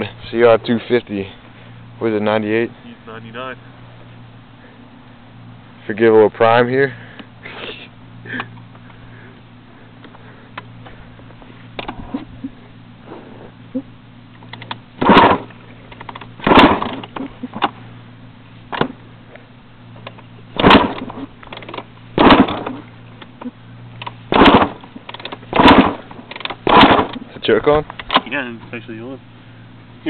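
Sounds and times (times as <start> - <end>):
steady low hum: 0.0 - 30.0
motorcycle engine kick-start turning over: 11.8 - 13.4, 14.4 - 17.8, 20.0 - 27.3.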